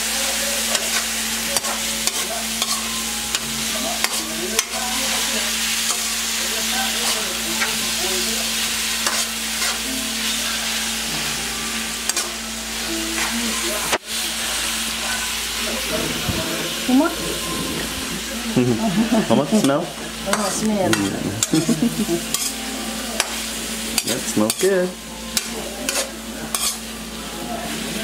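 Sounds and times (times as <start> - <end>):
food sizzling in a wok: 0.0 - 28.0
metal ladle scraping a pan: 22.3 - 22.6, 25.4 - 26.8.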